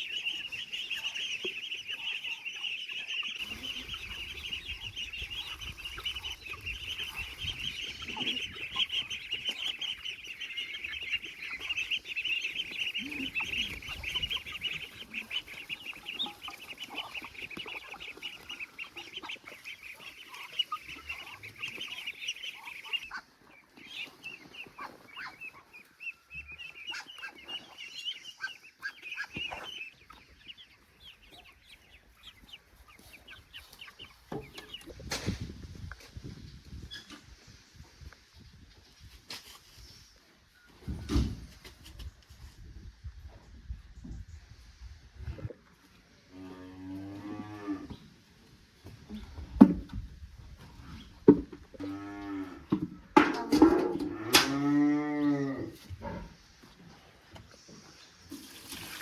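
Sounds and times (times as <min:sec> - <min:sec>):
chicks peeping: 0:00.0 - 0:46.3.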